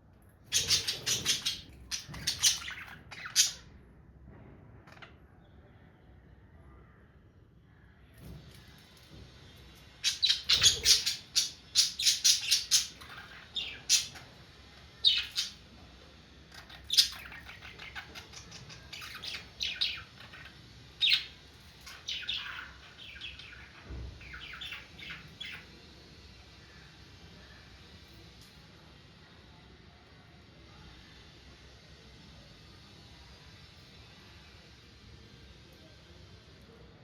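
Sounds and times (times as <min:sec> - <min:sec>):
budgerigars chirping and chattering: 0:00.5 - 0:03.7, 0:10.0 - 0:14.3, 0:15.0 - 0:15.6, 0:16.6 - 0:25.7.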